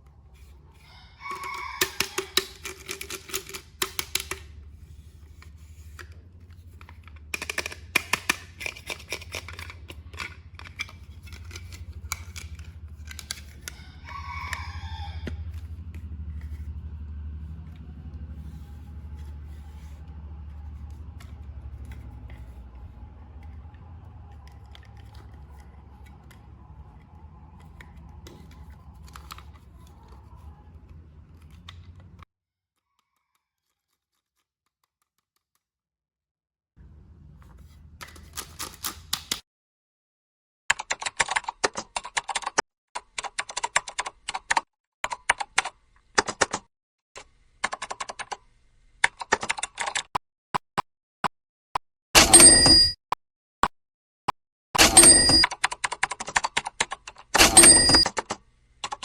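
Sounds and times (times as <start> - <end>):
packaging clicks and crinkling: 1.4 - 4.4, 5.3 - 13.8.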